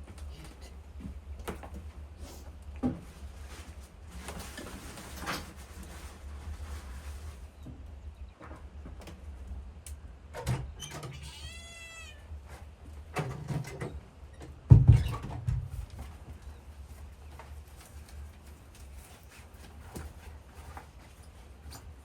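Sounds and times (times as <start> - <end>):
knocks and thumps: 13.1 - 16.1.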